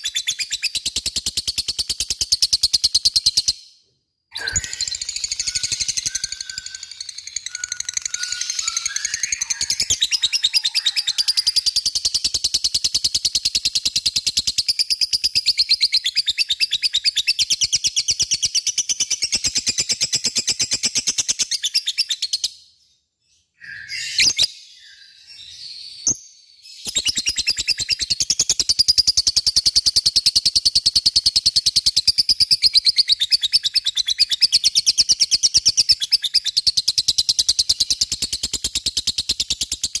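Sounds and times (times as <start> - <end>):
bird chattering trill: 4.4 - 11.7.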